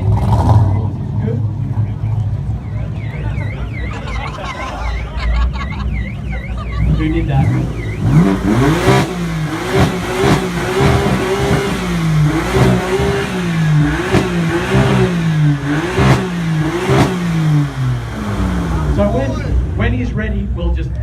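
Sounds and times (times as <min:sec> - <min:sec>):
car engine revving: 0:00.0 - 0:20.3
exhaust cracks: 0:06.8 - 0:19.9.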